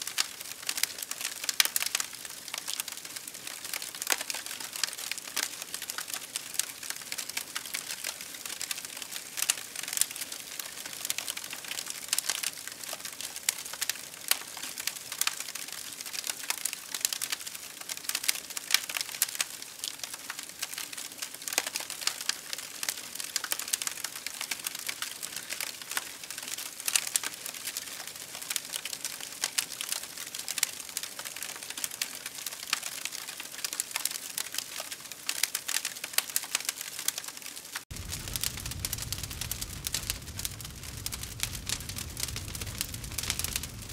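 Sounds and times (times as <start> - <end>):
campfire crackling and popping: 0.0 - 43.9
fire hiss: 37.9 - 43.9.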